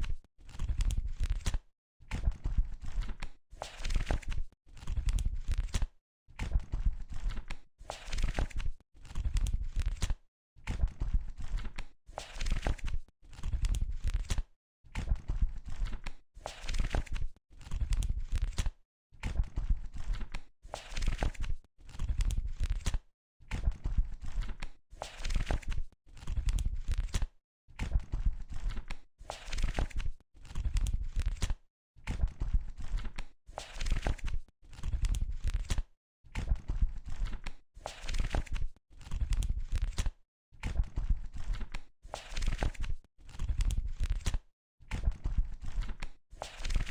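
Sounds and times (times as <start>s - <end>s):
book pages turning: 3.7s - 4.9s, 33.6s - 35.8s, 37.2s - 40.1s, 41.4s - 44.4s, 45.7s - 46.9s.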